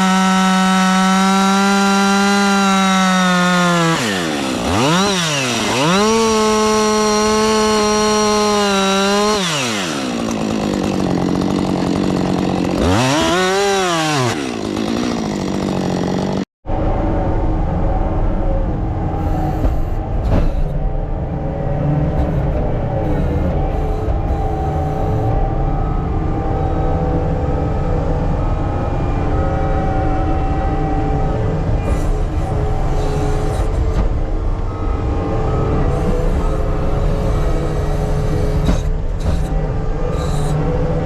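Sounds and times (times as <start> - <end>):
heavy machine whining at high revs: 0.0 - 16.5, 18.4 - 41.0.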